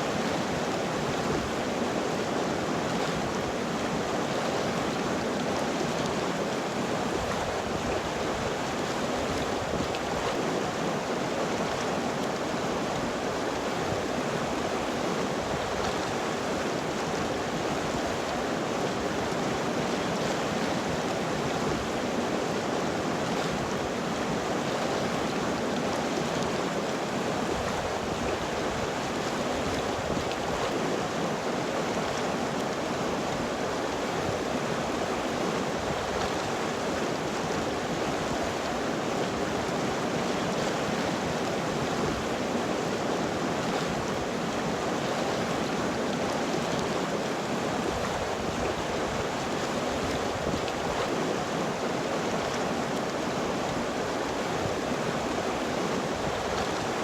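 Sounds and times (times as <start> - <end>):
river water flowing over rocks: 0.0 - 57.0.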